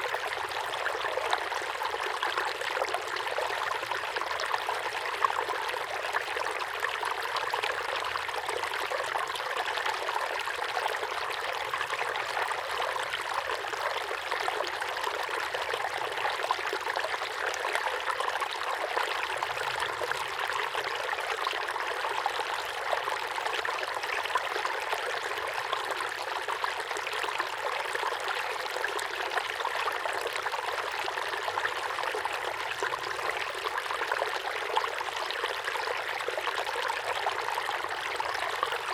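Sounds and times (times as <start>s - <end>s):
waterfall pouring into pond: 0.0s - 38.9s.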